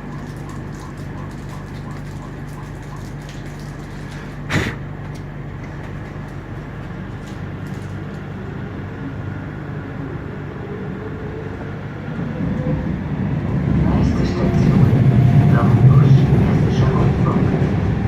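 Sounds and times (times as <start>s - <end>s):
wheel and track noise: 0.0s - 9.1s
train hum: 0.0s - 18.0s.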